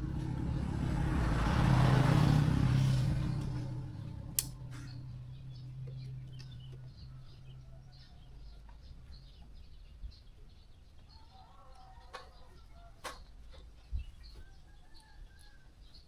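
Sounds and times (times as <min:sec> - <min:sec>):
low steady hum: 0:00.0 - 0:09.3
faint birds chirping: 0:00.0 - 0:16.0
sharp click: 0:04.4 - 0:05.0.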